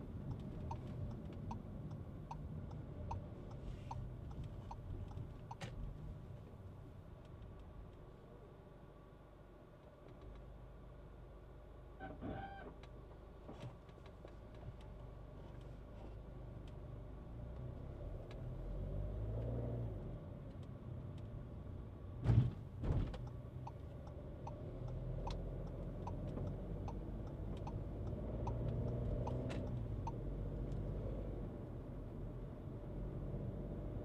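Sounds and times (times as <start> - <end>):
car engine and road noise: 0.0 - 34.0
light ticking: 0.2 - 5.6, 23.2 - 30.8.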